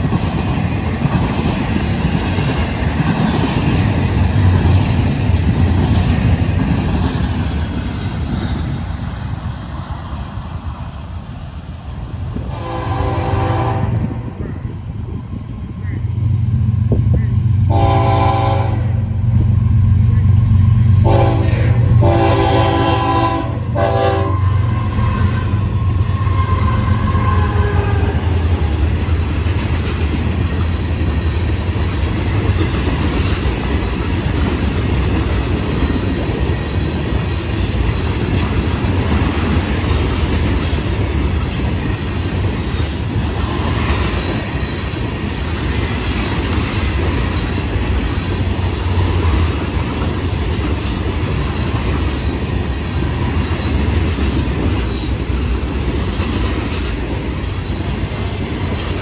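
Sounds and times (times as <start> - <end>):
steel wheels rumbling on rail: 0.0 - 59.0
high-pitched wheel squeals: 24.3 - 28.2.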